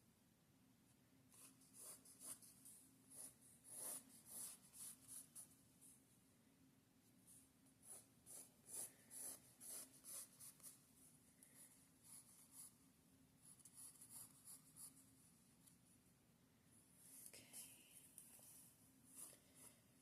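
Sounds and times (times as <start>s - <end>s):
pencil scratching on paper: 1.3s - 5.6s, 7.8s - 10.8s, 11.6s - 12.8s, 13.4s - 15.1s.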